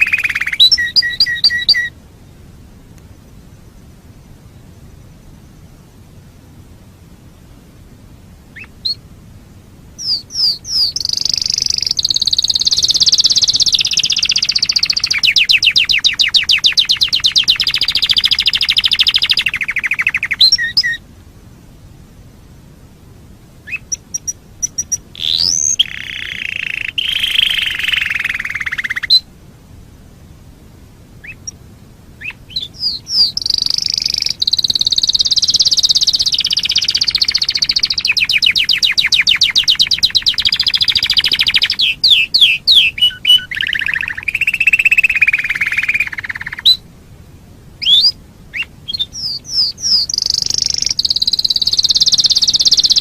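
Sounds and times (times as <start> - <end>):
canary singing trills: 0.0 - 2.0, 8.5 - 9.1, 10.0 - 21.0, 23.6 - 29.3, 31.2 - 31.6, 32.2 - 46.9, 47.8 - 53.0.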